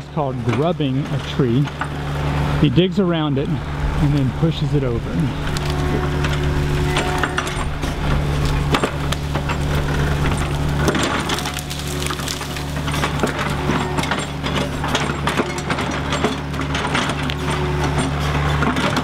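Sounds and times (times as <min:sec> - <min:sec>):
excavator diesel engine running: 0:00.0 - 0:19.0
wood cracking and snapping: 0:05.4 - 0:19.0.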